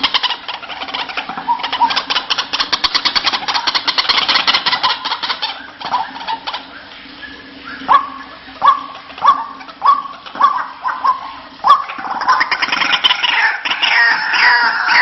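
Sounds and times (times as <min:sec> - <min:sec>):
waterhen calling: 0:00.0 - 0:15.0.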